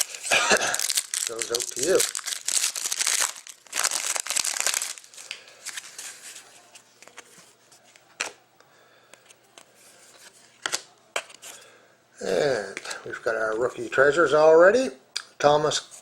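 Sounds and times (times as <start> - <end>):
plastic wrapper crinkling: 0.0 - 7.3.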